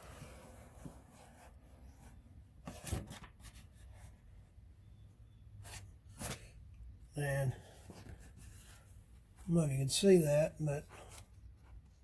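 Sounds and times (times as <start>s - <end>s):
paper rustling and crinkling: 2.6s - 4.2s.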